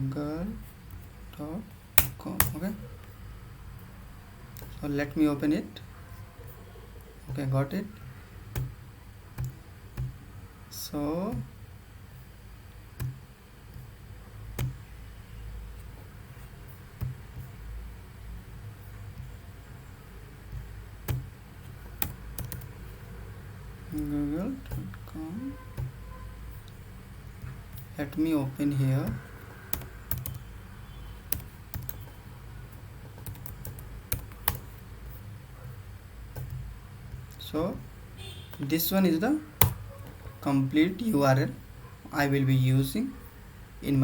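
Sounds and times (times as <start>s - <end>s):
keyboard keys clicking: 21.9s - 22.7s, 29.0s - 30.4s, 31.3s - 32.2s, 33.0s - 34.7s.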